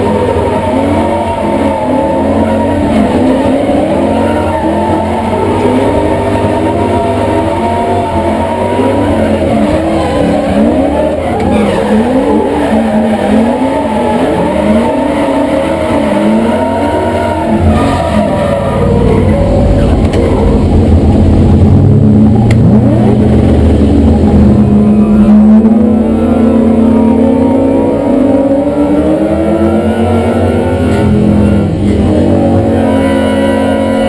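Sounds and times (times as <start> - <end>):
tyres squealing: 0.0 - 20.8
car engine revving: 0.0 - 34.0.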